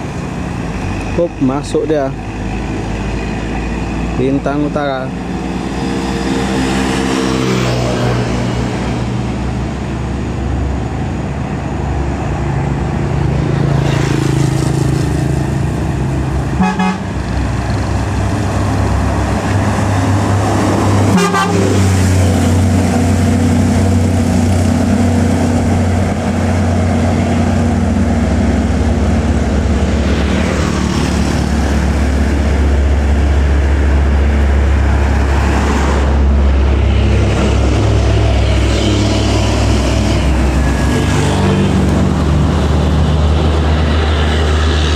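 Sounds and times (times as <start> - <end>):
diesel engine drone of trucks: 0.0 - 44.9
vehicle horn tooting: 16.6 - 17.0, 21.1 - 21.7.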